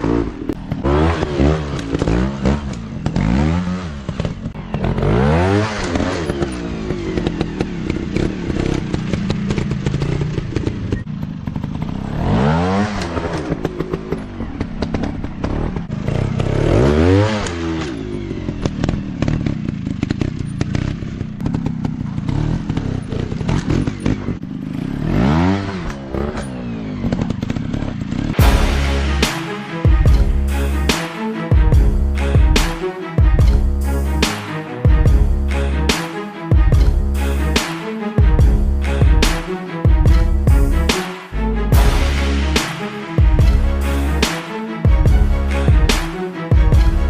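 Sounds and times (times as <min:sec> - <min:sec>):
trail bike engines revving: 0:00.0 - 0:29.4.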